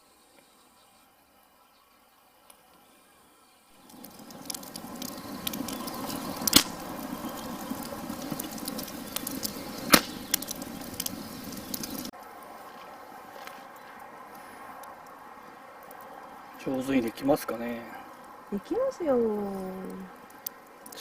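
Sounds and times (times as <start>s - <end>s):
campfire crackling: 0.0s - 21.0s
loud fire pops: 3.8s - 12.2s.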